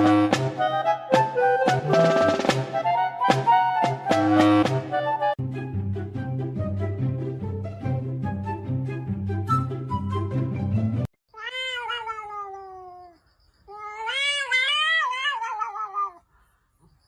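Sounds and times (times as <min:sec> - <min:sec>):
background music: 0:00.0 - 0:11.1
cat meowing: 0:11.4 - 0:16.3.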